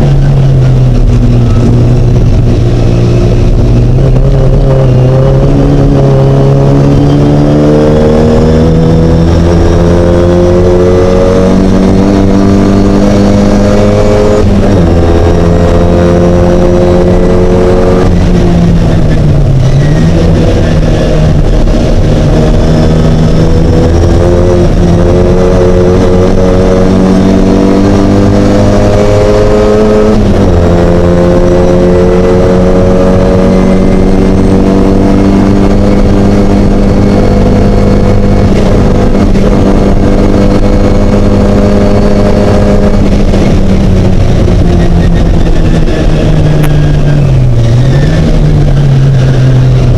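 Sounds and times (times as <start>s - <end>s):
car engine accelerating hard: 0.0s - 49.9s.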